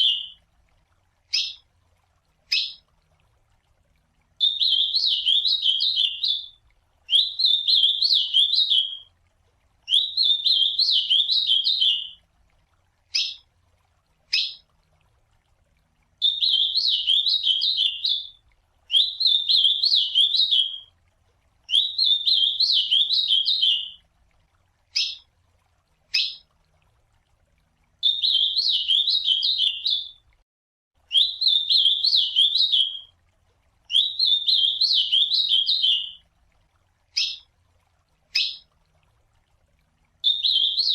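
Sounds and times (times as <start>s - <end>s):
bird singing warbled song: 0.0s - 0.4s, 1.3s - 1.6s, 2.5s - 2.8s, 4.4s - 9.1s, 9.9s - 12.2s, 13.1s - 13.4s, 14.3s - 14.6s, 16.2s - 20.9s, 21.7s - 24.0s, 25.0s - 25.2s, 26.1s - 26.4s, 28.0s - 30.2s, 31.1s - 33.1s, 33.9s - 36.2s, 37.1s - 37.5s, 38.3s - 38.7s, 40.2s - 40.9s.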